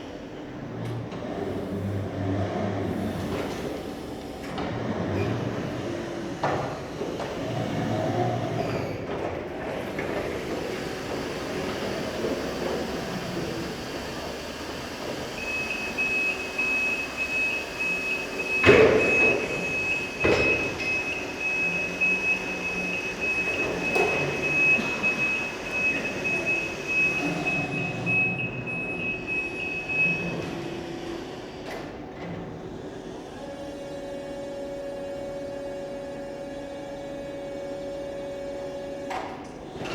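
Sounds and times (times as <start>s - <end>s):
electric truck running: 9.9s - 31.0s
high warning tone: 15.4s - 30.3s.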